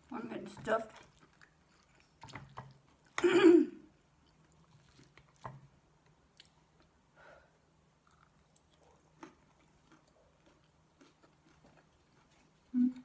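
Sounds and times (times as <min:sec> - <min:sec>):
wet chewing: 0:00.4 - 0:03.2, 0:04.2 - 0:05.7, 0:08.0 - 0:12.7.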